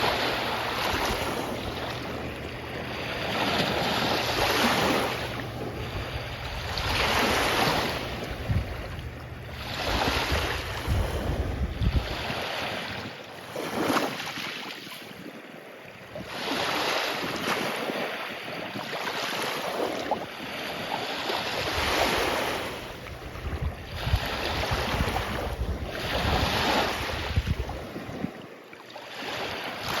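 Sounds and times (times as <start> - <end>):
wind buffeting microphone: 0.0 - 13.2, 21.6 - 28.4
waves breaking on beach: 0.0 - 30.0.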